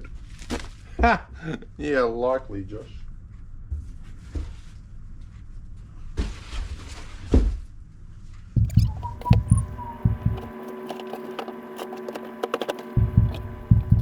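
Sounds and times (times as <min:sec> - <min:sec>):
dull thumps in a box: 0:08.6 - 0:14.0.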